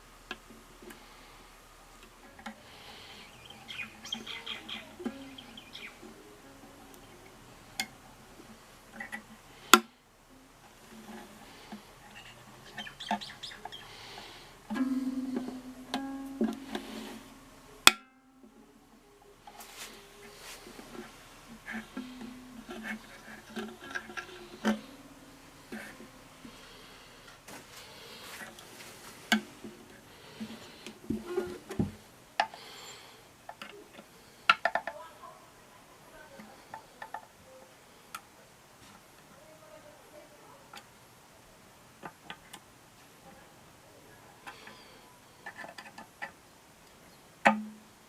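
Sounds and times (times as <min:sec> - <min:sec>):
ukulele string plucked: 0:03.8 - 0:11.4, 0:14.7 - 0:26.5.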